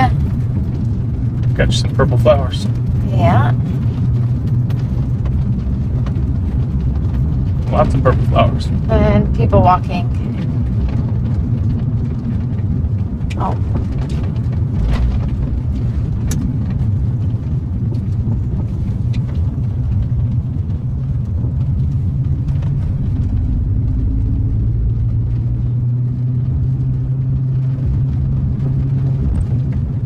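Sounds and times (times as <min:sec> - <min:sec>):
engine and tyre hum: 0:00.0 - 0:30.0
light knocks and rattles: 0:10.2 - 0:25.6.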